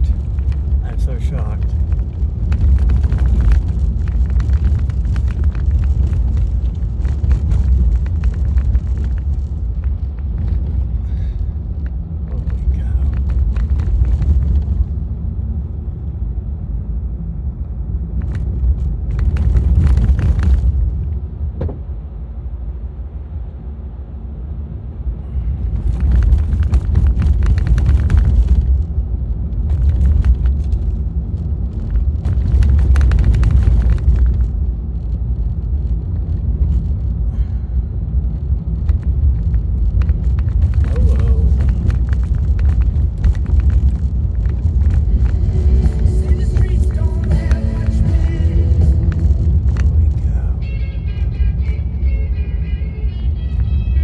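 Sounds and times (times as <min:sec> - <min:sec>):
car road rumble: 0:00.0 - 0:54.0.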